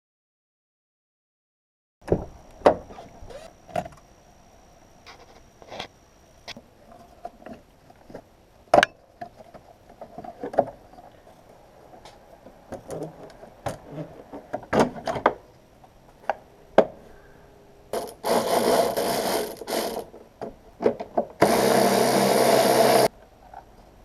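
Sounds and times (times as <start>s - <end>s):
faint high steady tone: 3.3s - 6.8s.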